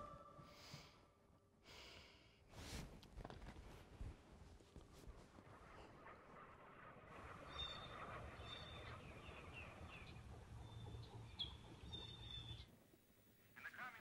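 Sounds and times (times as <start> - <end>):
small birds chirping: 7.2 - 12.7.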